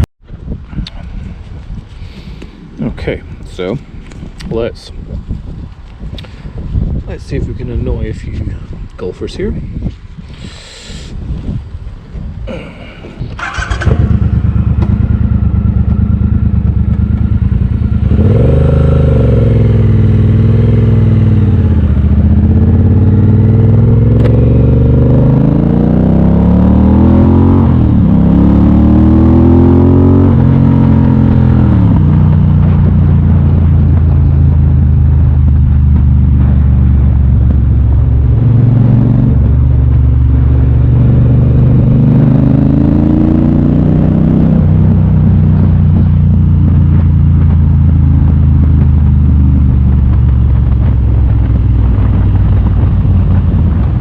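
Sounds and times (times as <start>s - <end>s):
motorcycle accelerating: 11.2s - 54.0s.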